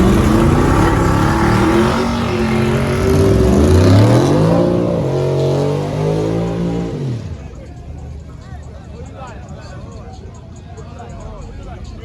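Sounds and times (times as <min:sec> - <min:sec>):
car engine accelerating hard: 0:00.0 - 0:07.7.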